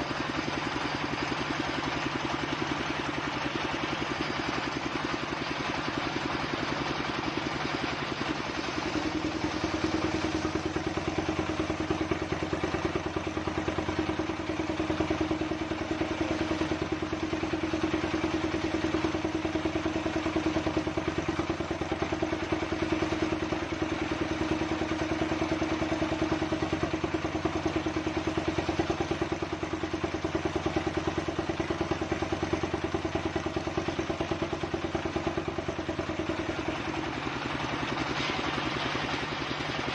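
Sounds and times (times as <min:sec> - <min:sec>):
engine-driven circular saw running: 0:00.0 - 0:39.9.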